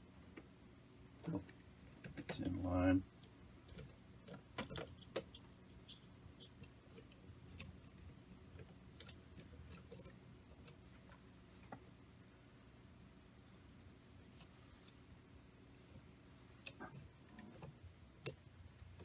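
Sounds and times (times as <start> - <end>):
metal parts and tools clinking: 9.0 - 10.8.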